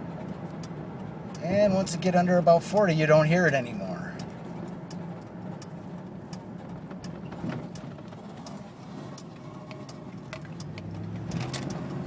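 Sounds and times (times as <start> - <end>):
car road rumble: 0.0 - 12.0
light ticks and creaks: 4.1 - 12.0.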